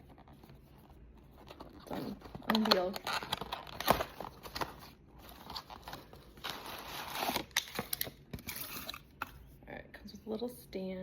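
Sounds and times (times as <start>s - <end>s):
packaging crinkling and tearing: 1.5s - 9.2s.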